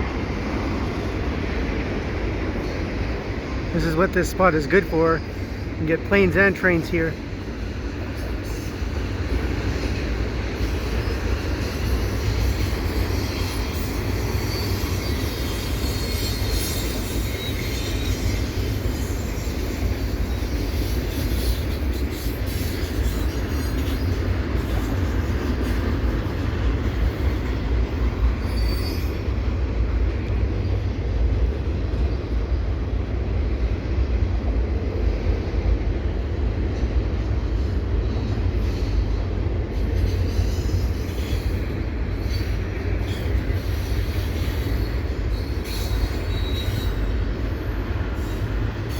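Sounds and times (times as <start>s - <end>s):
freight train wheels rumbling on rails: 0.0s - 48.9s
high wheel squeal: 10.6s - 25.0s, 28.2s - 29.4s, 39.8s - 48.9s.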